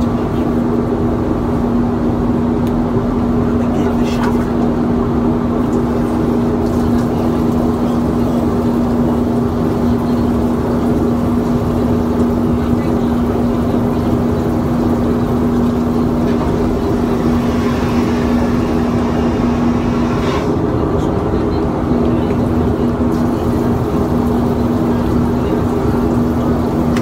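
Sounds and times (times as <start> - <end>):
airliner cabin drone: 0.0 - 27.0.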